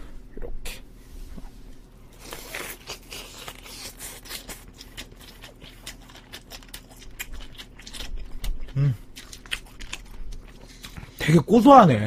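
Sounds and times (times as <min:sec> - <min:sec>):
chewing crunchy chicken: 0:02.2 - 0:11.4.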